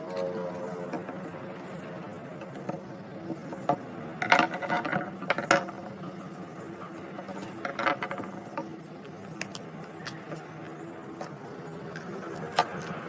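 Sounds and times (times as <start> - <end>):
faint steady hum: 0.0 - 13.0
metal parts and tools clattering: 3.5 - 5.9, 6.9 - 8.8.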